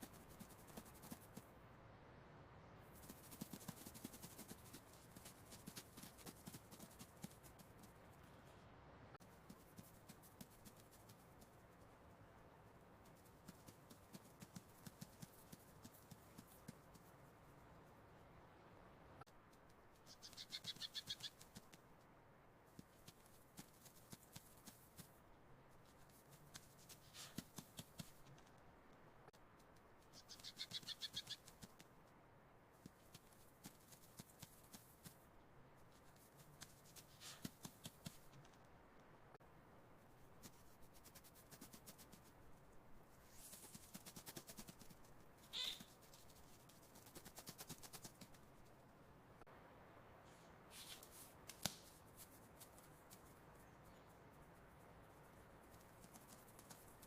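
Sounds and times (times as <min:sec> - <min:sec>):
tiny ticks and scratches: 0:00.0 - 0:01.5, 0:02.9 - 0:08.3, 0:09.2 - 0:12.1, 0:12.9 - 0:17.6, 0:19.2 - 0:22.1, 0:22.7 - 0:32.2, 0:32.8 - 0:38.7, 0:40.1 - 0:48.8, 0:50.7 - 0:57.0
faint clicks and scratches: 0:50.8 - 0:57.0.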